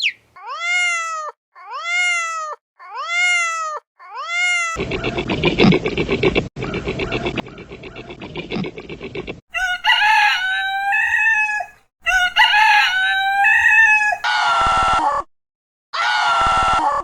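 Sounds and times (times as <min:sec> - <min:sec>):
rooster crowing: 0:09.5 - 0:14.3
animal calls: 0:09.5 - 0:14.4.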